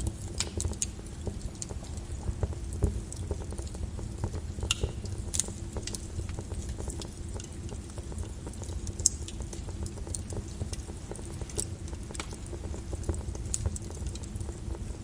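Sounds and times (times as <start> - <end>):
lava crackling and popping: 0.0 - 15.0.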